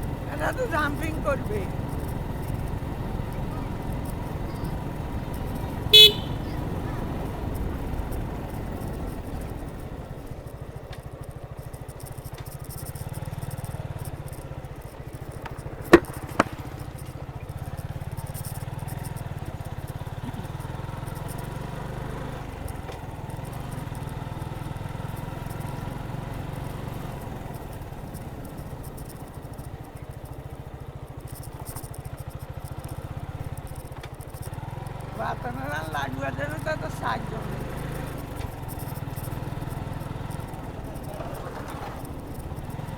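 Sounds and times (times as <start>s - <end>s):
motorcycle engine: 0.0s - 42.9s
road noise: 0.0s - 42.9s
sharp knocks: 15.4s - 17.1s.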